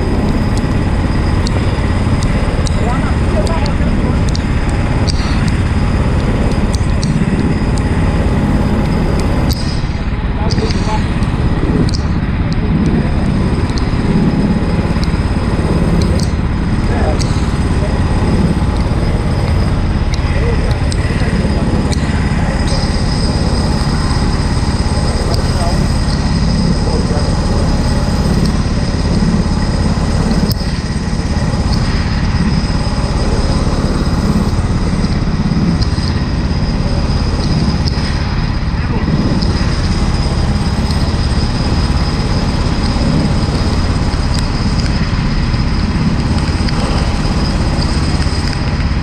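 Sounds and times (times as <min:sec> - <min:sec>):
go-kart engine running: 0:00.0 - 0:49.0
faint sharp ticks: 0:03.4 - 0:05.6.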